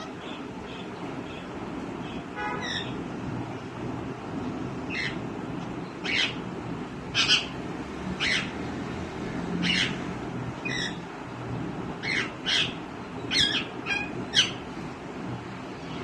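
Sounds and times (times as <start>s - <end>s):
parrot shrill calls: 2.6s - 3.0s, 8.2s - 8.5s, 9.6s - 10.0s, 10.6s - 11.0s, 12.0s - 14.6s.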